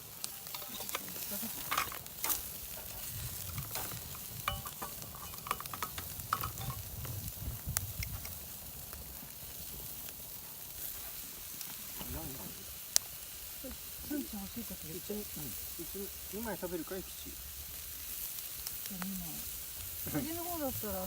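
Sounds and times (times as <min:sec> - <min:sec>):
meat sizzling on a grill: 0:00.0 - 0:21.0
utensils clinking: 0:00.2 - 0:02.5, 0:03.4 - 0:06.8.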